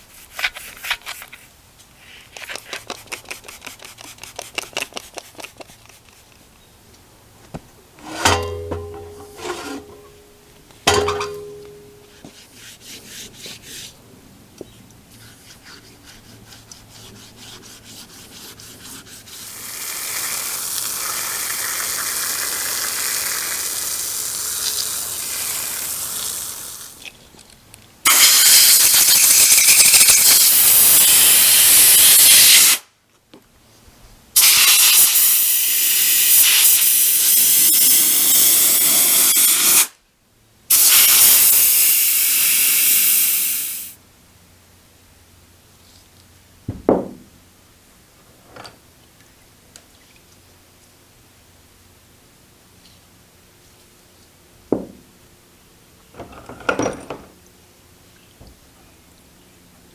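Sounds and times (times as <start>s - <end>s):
faint scraping: 8.0s - 10.3s
compressed air blasts from blow gun: 28.1s - 32.9s, 34.4s - 40.0s, 40.7s - 44.0s.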